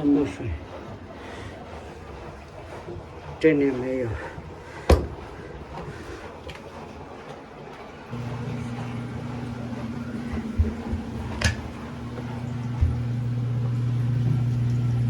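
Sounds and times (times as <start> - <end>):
drain pump humming: 0.0 - 15.0
dull knocks: 4.8 - 5.3, 10.2 - 13.2.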